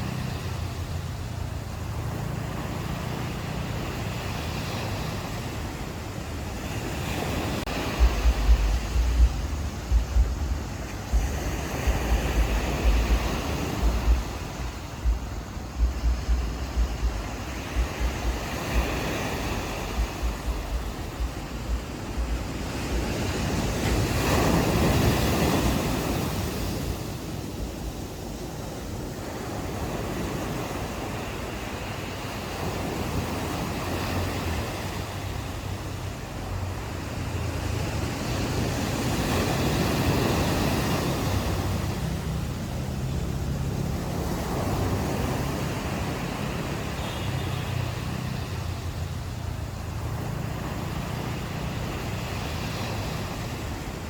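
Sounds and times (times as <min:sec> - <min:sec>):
ocean surf washing ashore: 0:00.0 - 0:54.0
wind buffeting microphone: 0:00.0 - 0:54.0.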